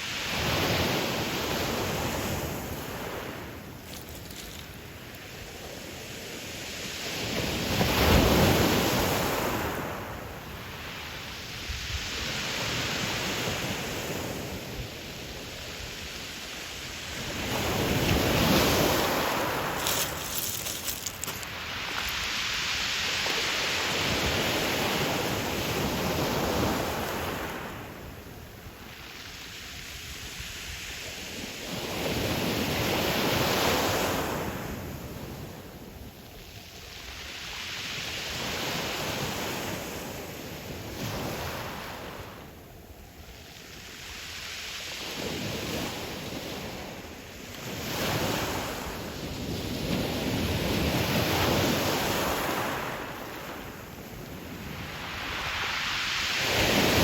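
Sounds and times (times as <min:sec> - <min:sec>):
waves breaking on pebble shore: 0:00.0 - 0:10.4, 0:11.3 - 0:28.1, 0:36.9 - 0:42.3, 0:47.6 - 0:57.0.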